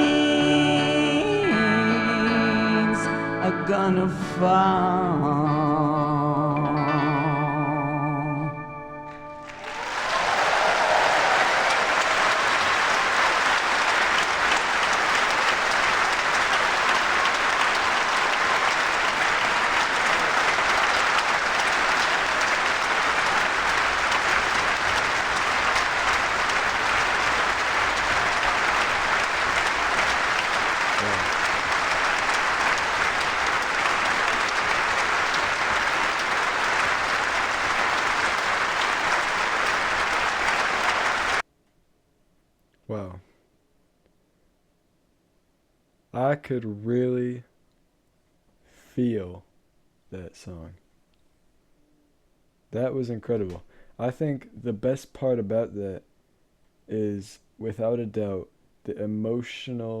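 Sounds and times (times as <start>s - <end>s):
large audience applauding: 9.1s - 41.4s.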